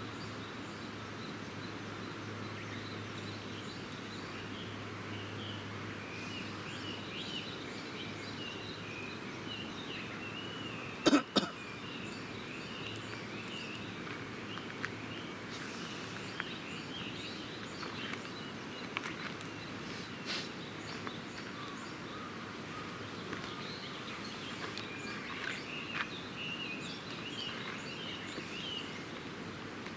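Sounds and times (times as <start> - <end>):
small birds twittering: 0.0 - 29.9.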